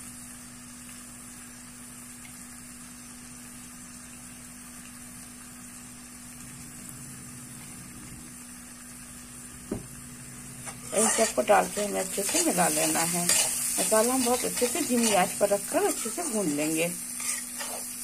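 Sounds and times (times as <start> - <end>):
food sizzling in oil: 0.0 - 18.0
low hum: 5.8 - 17.1.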